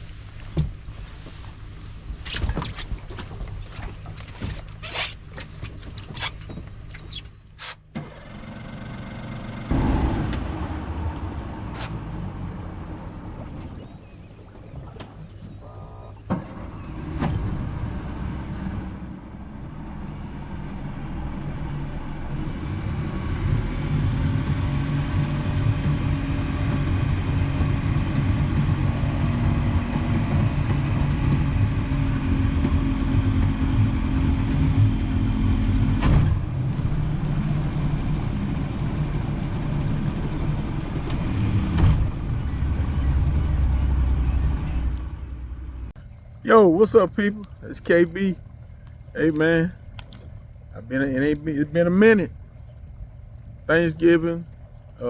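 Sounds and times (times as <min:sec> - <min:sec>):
vehicle engine humming: 0:08.5 - 0:55.0.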